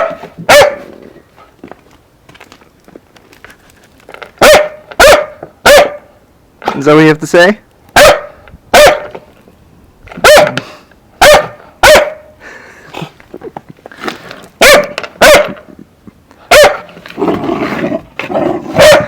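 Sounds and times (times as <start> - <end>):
puppy barking: 0.0 - 0.9, 4.4 - 6.1, 8.0 - 9.1, 10.2 - 10.6, 11.2 - 12.3, 14.6 - 15.6, 16.5 - 16.9, 18.8 - 19.0.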